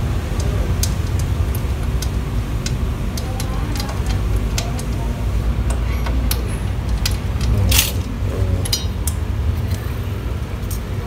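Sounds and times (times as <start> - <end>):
metal parts clicking and clinking: 0.4 - 11.0
low rumble: 6.6 - 10.6.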